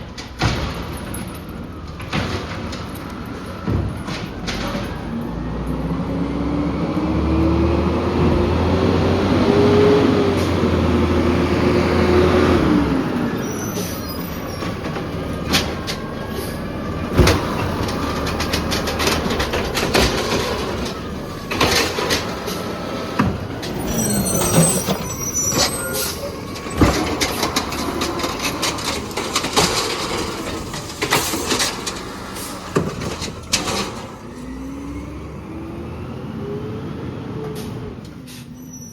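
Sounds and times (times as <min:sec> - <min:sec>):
metal and plastic clanks: 0:00.0 - 0:05.0, 0:17.1 - 0:34.2
truck engine revving: 0:05.2 - 0:13.4, 0:14.0 - 0:38.1
high squeal: 0:13.3 - 0:14.9, 0:23.6 - 0:27.2, 0:38.5 - 0:38.9.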